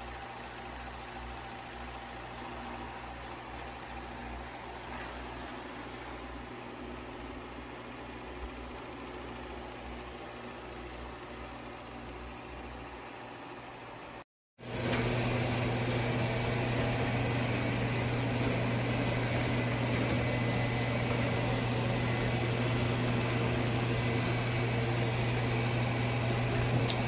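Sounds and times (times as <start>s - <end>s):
robot vacuum motor hum: 14.6s - 27.0s.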